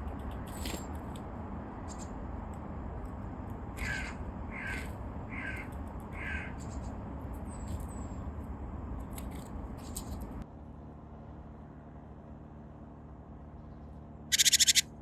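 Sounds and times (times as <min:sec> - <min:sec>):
crow cawing: 0:14.3 - 0:14.8
faint clicks: 0:14.3 - 0:14.8
high thin chirp: 0:14.3 - 0:14.8.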